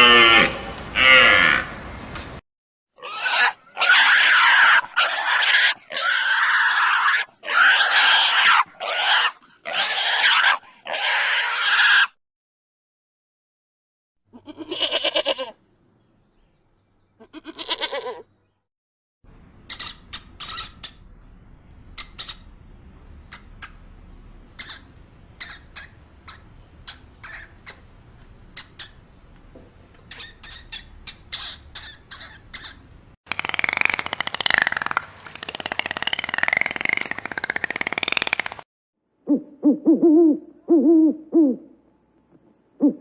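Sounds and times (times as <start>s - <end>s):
loud harsh animal calls: 0.0s - 1.7s, 3.0s - 12.2s, 19.7s - 21.1s, 22.0s - 22.5s, 24.5s - 27.9s, 28.6s - 29.0s, 30.1s - 34.9s
long quavering bleats: 14.3s - 15.6s, 17.2s - 18.3s
short sharp high squeaks: 19.7s - 21.1s, 22.0s - 22.5s, 24.6s - 27.9s, 30.0s - 32.9s.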